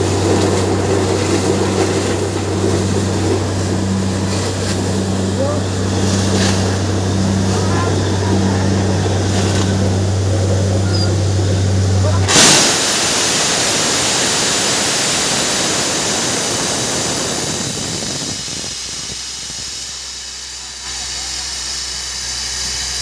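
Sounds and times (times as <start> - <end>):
air hissing out: 0.0 - 23.0
drilling rig engine hum: 0.0 - 23.0.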